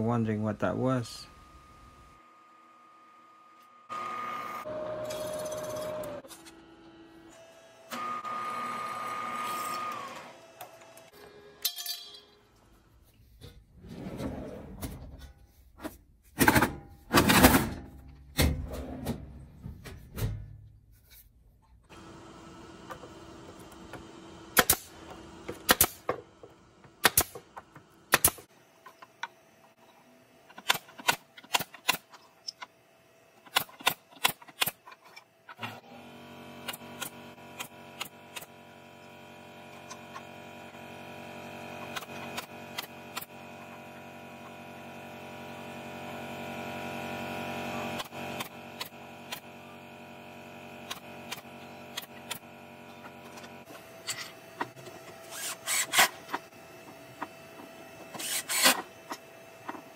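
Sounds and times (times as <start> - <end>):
steady machine hum: 0.0 - 13.0
nailer shooting nails into wood: 24.6 - 24.9, 25.6 - 26.2, 27.0 - 27.4, 28.1 - 28.5.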